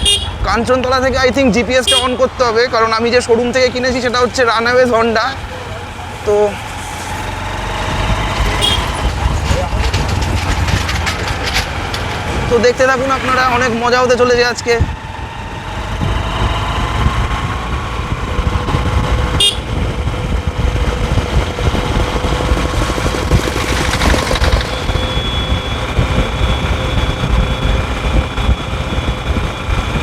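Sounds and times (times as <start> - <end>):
motorcycle engine running: 0.0 - 1.1, 3.8 - 30.0
wind rumble on microphone: 6.8 - 30.0.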